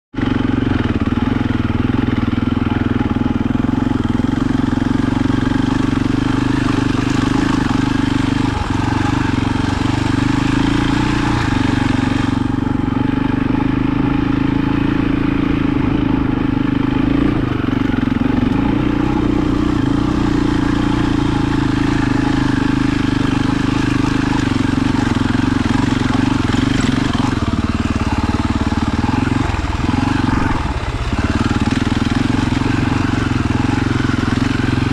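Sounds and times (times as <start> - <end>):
vehicle engine humming steadily: 0.1 - 34.9.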